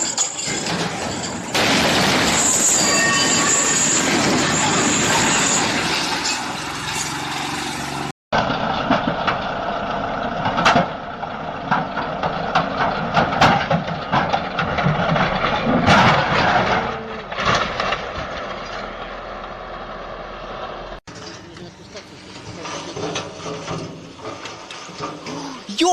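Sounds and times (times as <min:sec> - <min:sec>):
heavy vehicle running: 0:00.0 - 0:25.9
sharp knocks and clanks: 0:10.4 - 0:11.0, 0:11.6 - 0:18.9, 0:21.0 - 0:25.6.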